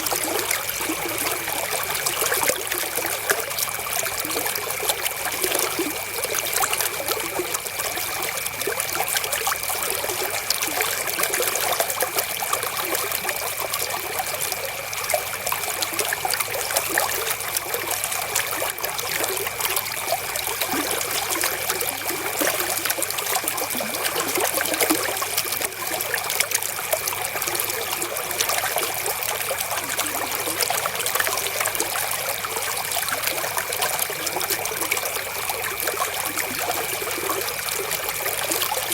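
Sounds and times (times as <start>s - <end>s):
river water flowing: 0.0s - 8.0s, 16.7s - 38.9s.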